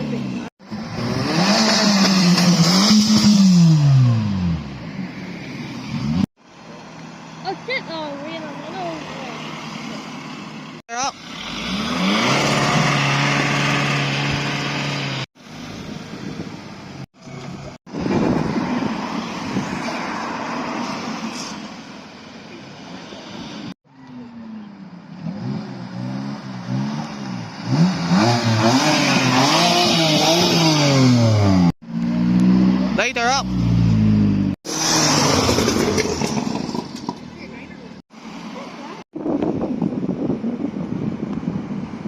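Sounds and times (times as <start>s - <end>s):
car engine revving: 0.0s - 4.8s, 11.2s - 16.2s, 25.2s - 37.3s.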